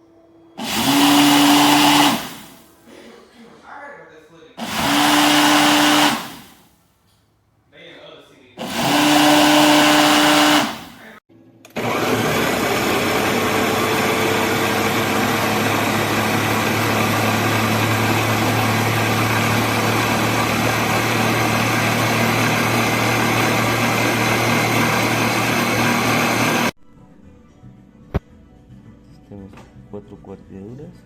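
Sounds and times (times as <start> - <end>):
blender motor running: 0.6 - 2.7, 4.6 - 6.6, 8.6 - 26.8.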